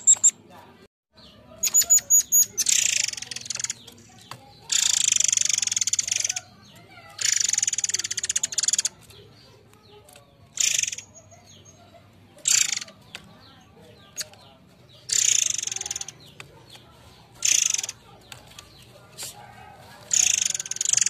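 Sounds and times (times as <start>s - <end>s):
bird giving shrill rasping calls: 1.6s - 3.9s, 4.6s - 9.0s, 10.5s - 11.8s, 12.4s - 13.0s, 15.0s - 16.4s, 17.4s - 18.1s, 20.0s - 21.0s.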